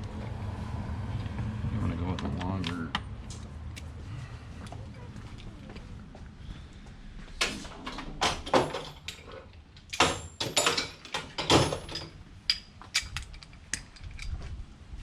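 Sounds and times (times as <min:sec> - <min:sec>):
metal socket tools clinking: 0:08.5 - 0:14.4.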